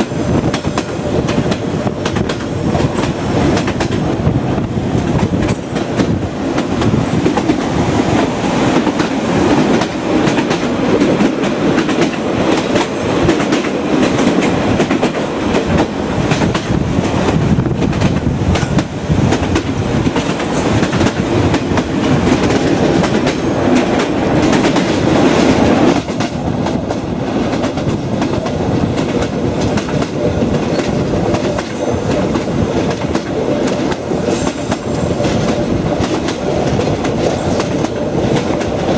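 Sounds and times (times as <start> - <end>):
train wheels clattering over rails: 0.0 - 38.9.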